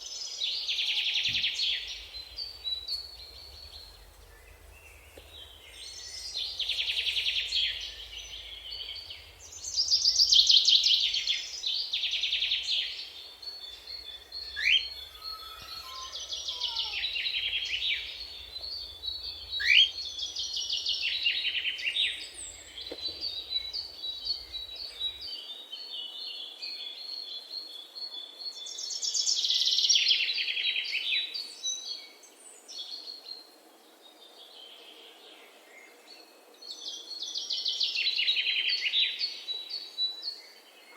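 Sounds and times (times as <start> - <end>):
songbirds trilling: 0.0 - 25.4
upward-sweeping bird calls: 14.4 - 18.4, 19.5 - 20.0.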